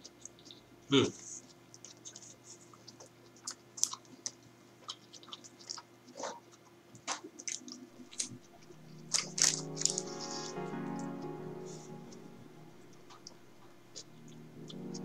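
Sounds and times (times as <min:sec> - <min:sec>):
person chewing wetly: 0:01.4 - 0:08.3, 0:09.1 - 0:10.0.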